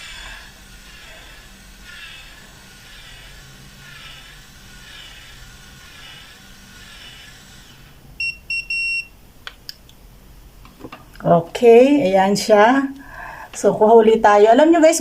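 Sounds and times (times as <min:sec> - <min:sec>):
curling iron whirring: 0:00.0 - 0:09.0
curling iron beeps: 0:08.2 - 0:09.1.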